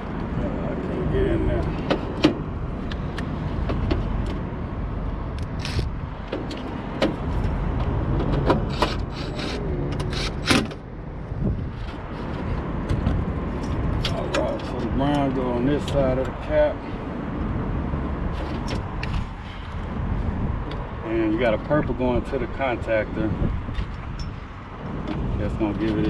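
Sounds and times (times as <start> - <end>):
steady low rumble: 0.0 - 25.9
clicks of wires and terminals: 5.4 - 10.8.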